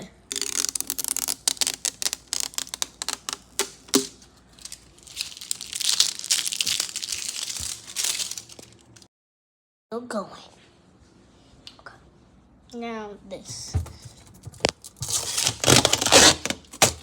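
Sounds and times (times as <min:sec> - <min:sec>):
packaging crinkling and crackling: 0:00.3 - 0:09.1, 0:13.7 - 0:17.0.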